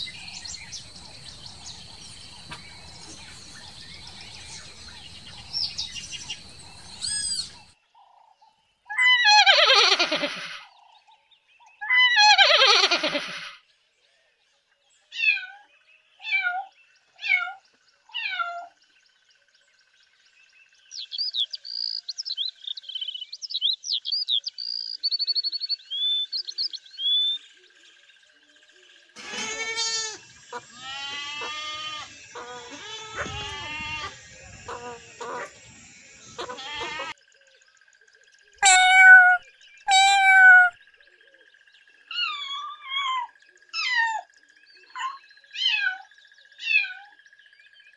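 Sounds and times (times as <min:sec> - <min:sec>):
high bird chirping: 0:00.0 - 0:07.7, 0:21.0 - 0:27.4, 0:29.4 - 0:37.2, 0:38.6 - 0:40.8
sheep bleating: 0:29.2 - 0:35.5, 0:36.3 - 0:37.2
short falling animal calls: 0:29.2 - 0:37.2, 0:38.6 - 0:40.8
cat meowing: 0:30.8 - 0:34.8, 0:36.4 - 0:37.2, 0:38.6 - 0:40.8.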